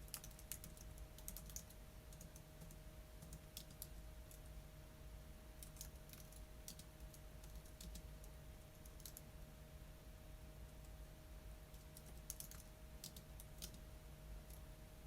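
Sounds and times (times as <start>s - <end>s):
typing on computer keyboard: 0.0s - 4.5s, 5.6s - 9.2s, 11.7s - 13.8s
low steady hum: 0.0s - 15.0s.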